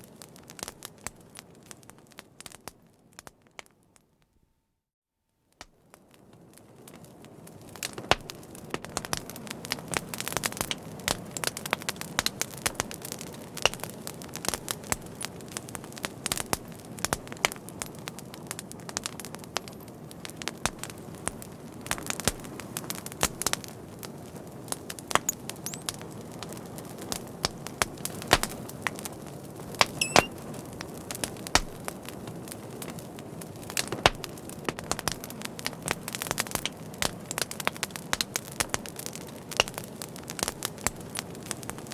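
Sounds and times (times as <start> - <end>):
fire crackling: 0.0 - 3.8, 5.6 - 41.9
short high whistle: 30.0 - 30.3.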